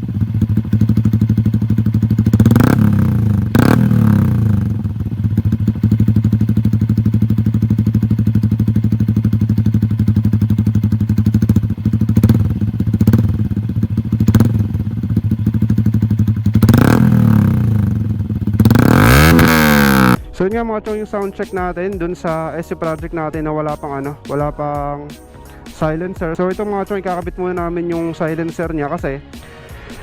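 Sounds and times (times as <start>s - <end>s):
motorcycle engine idling: 0.0s - 20.2s.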